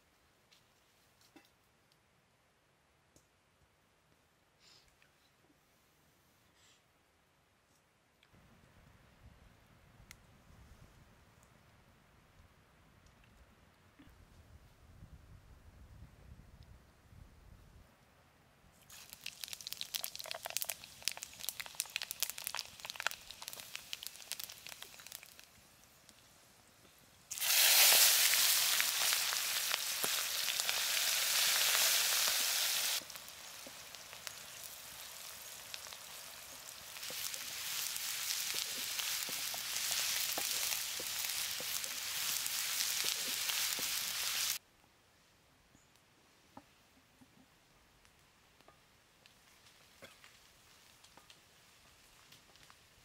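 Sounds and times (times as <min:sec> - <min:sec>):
vegetables frying in oil: 0:18.9 - 0:25.5, 0:27.3 - 0:44.6.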